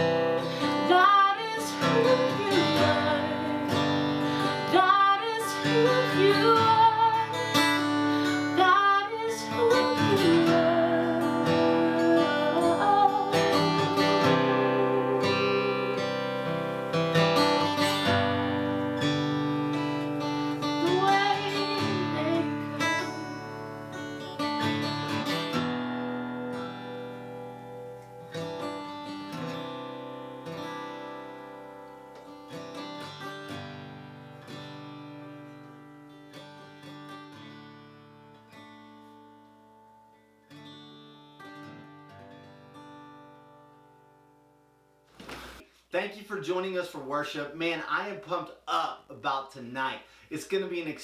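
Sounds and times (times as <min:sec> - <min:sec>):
strummed acoustic guitar: 0:00.0 - 0:45.6
person singing: 0:00.7 - 0:03.8, 0:04.5 - 0:07.6, 0:08.6 - 0:16.9, 0:20.6 - 0:24.0.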